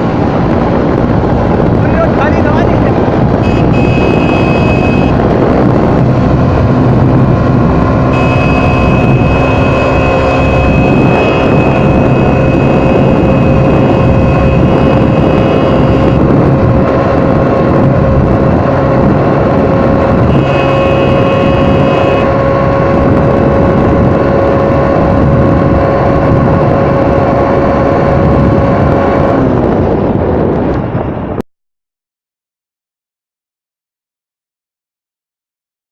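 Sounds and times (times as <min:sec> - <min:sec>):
motorcycle engine running: 0:00.0 - 0:30.2
steady whine: 0:01.1 - 0:17.4, 0:19.1 - 0:24.1.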